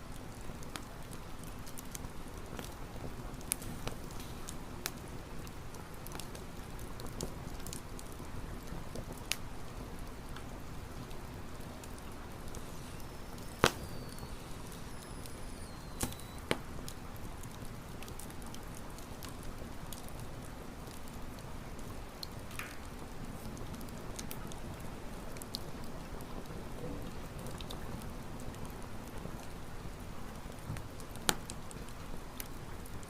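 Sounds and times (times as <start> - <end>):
campfire crackling: 0.1 - 33.0
fire popping: 0.5 - 33.0
faint high whistle: 12.6 - 16.5.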